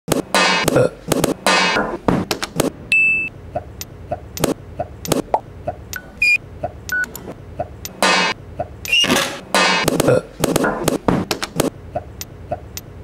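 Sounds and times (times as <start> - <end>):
short electronic beeps: 2.9 - 3.3.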